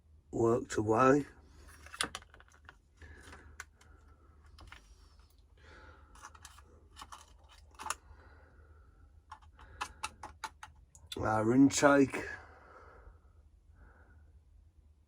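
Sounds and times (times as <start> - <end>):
faint low hum: 0.0 - 15.0
small parts clicking and rustling: 1.5 - 8.2, 9.2 - 11.2.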